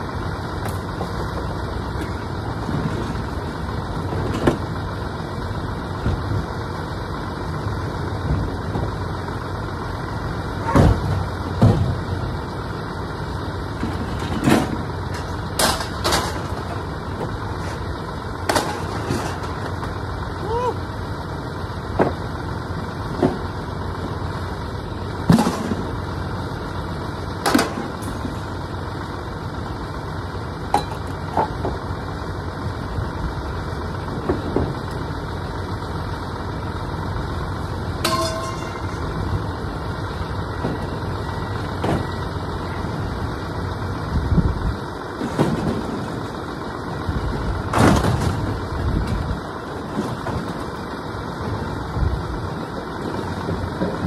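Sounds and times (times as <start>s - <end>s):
engine idling: 0.0s - 54.0s
scrap metal clanking: 18.5s - 19.8s, 38.0s - 39.2s.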